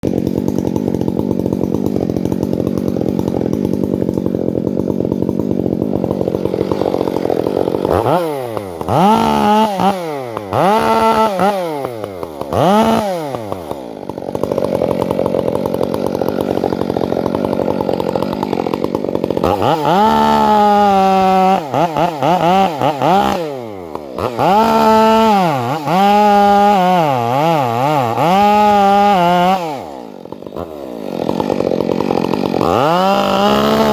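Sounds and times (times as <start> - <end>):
chainsaw idling and revving: 0.0 - 33.9.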